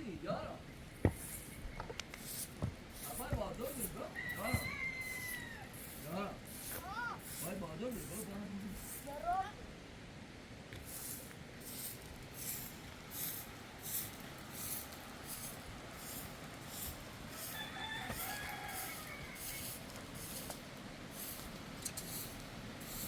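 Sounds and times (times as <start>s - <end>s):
short rasping strokes: 1.0s - 9.4s, 10.8s - 23.0s
rooster crowing: 3.8s - 6.0s, 17.3s - 19.8s.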